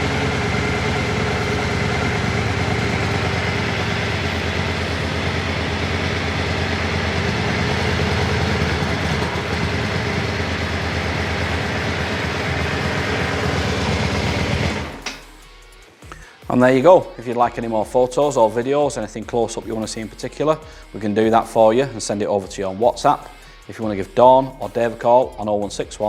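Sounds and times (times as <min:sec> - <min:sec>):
motorcycle engine idling: 0:00.0 - 0:15.4.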